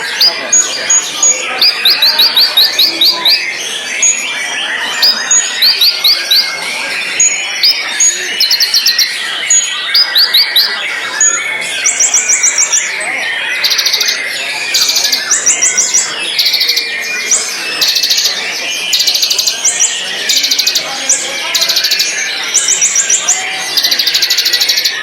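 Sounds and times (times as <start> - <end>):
bird singing high chirps: 0.0 - 25.0
lower bird twittering: 0.0 - 25.0.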